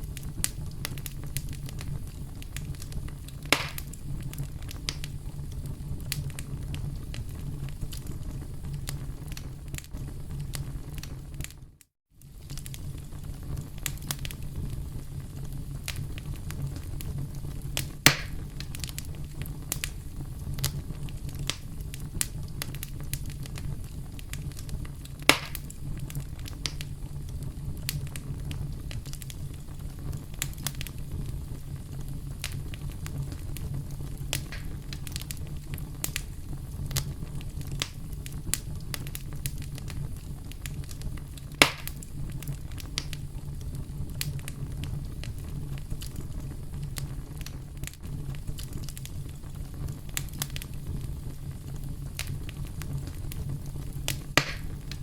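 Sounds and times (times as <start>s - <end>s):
campfire crackling: 0.0s - 55.0s
fire popping loudly: 0.0s - 55.0s.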